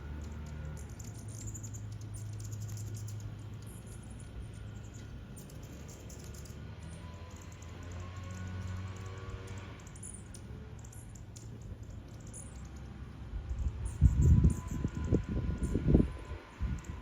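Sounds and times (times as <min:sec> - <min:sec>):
high-pitched bird ticks: 0:00.1 - 0:12.9.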